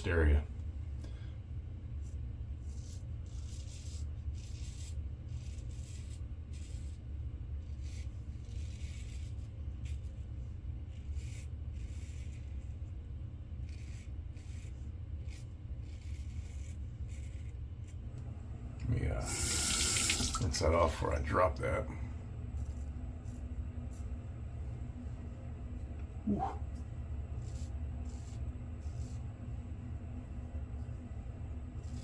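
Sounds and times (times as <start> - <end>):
steady low hum: 0.0 - 32.0
razor scraping stubble: 13.6 - 18.1, 18.9 - 21.9.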